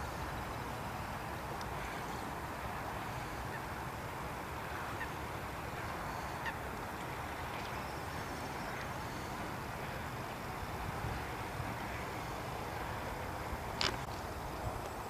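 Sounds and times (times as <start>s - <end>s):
faint bird calls: 1.6s - 3.8s, 4.6s - 10.1s.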